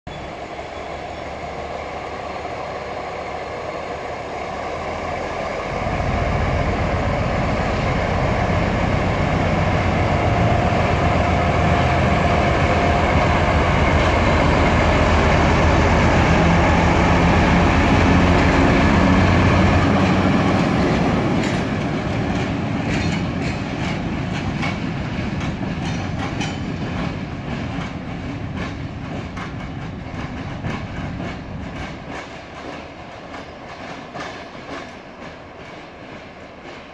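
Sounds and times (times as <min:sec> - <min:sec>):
diesel locomotive engine: 0:00.1 - 0:36.9
wagon wheels clicking over rail joints: 0:20.8 - 0:36.9.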